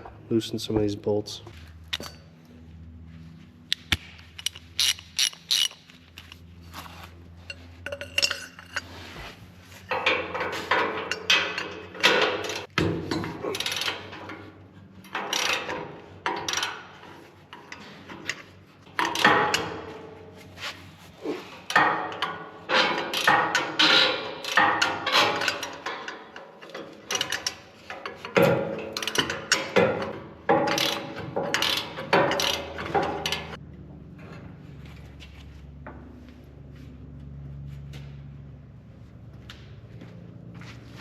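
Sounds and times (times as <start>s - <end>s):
ratchet wrench clicking: 3.7s - 6.4s, 13.6s - 14.2s, 15.1s - 15.7s, 21.7s - 25.9s, 30.6s - 33.6s
metal clinks: 7.4s - 8.9s.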